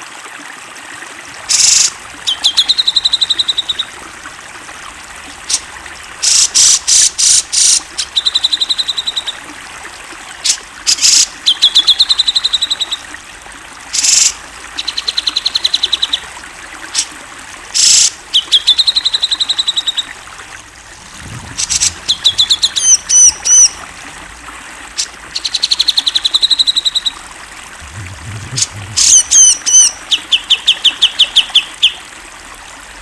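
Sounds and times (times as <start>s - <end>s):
whistled bird notes: 1.5s - 16.3s, 17.8s - 20.2s, 21.6s - 23.8s, 25.4s - 27.2s, 28.4s - 32.0s
bulbul singing harsh bursts and trills: 1.5s - 24.3s.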